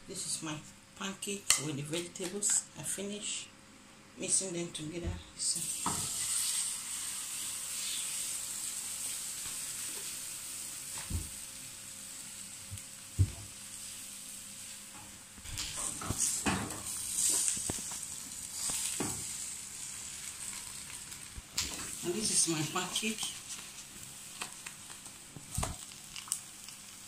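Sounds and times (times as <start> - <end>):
batter sizzling in oil: 5.5 - 27.0.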